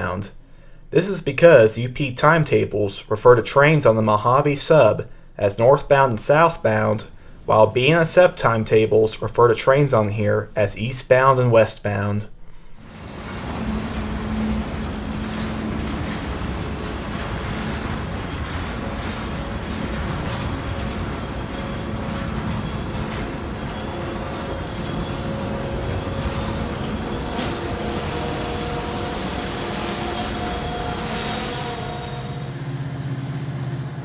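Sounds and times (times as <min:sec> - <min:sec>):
faint steady tones: 0:12.4 - 0:32.8
train wheels rumbling on rail: 0:12.7 - 0:34.0.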